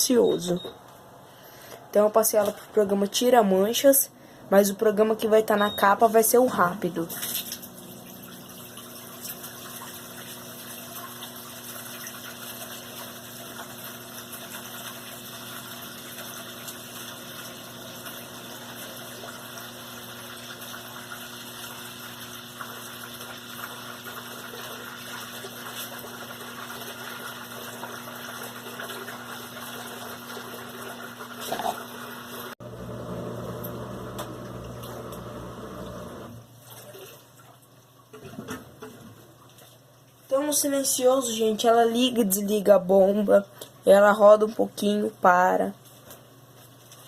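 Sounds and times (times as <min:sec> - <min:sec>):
drain pump humming: 0:04.2 - 0:37.4
water flowing through pump: 0:04.6 - 0:47.0.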